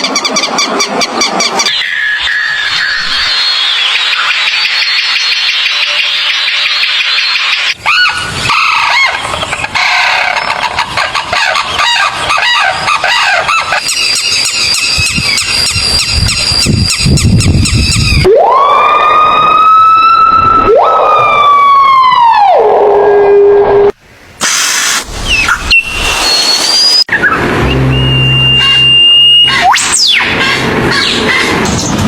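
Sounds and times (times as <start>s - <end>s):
siren wailing: 17.9s - 24.0s, 26.9s - 30.7s.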